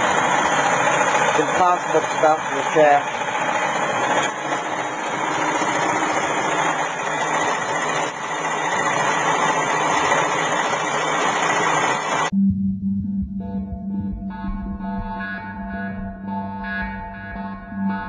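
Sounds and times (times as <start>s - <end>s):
electric motor whirring: 0.0s - 12.3s
low synthesizer tone: 12.3s - 18.0s.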